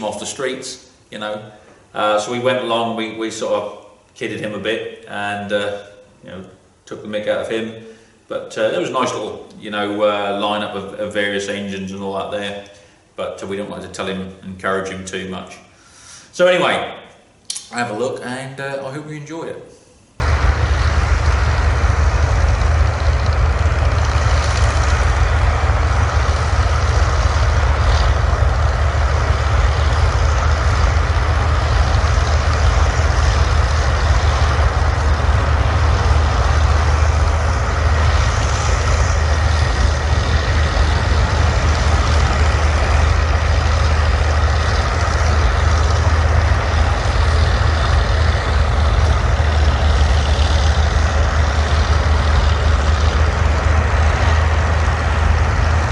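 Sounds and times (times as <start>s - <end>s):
diesel engine rumbling: 20.2s - 55.9s.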